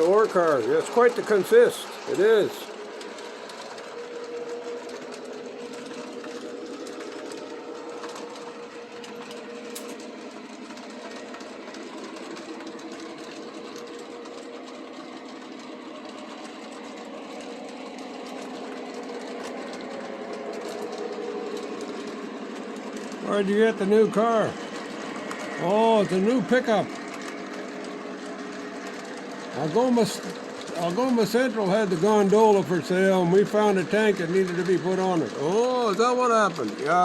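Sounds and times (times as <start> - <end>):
model train motor whirring: 0.0 - 37.0
model train wheels rolling: 0.0 - 37.0.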